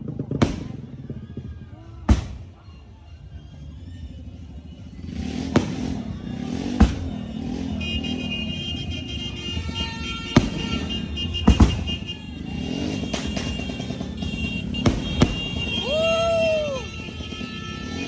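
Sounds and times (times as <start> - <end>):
firework bangs: 0.0 - 1.2, 2.1 - 2.6, 5.0 - 18.0
music: 0.0 - 12.4
engines: 0.0 - 18.0.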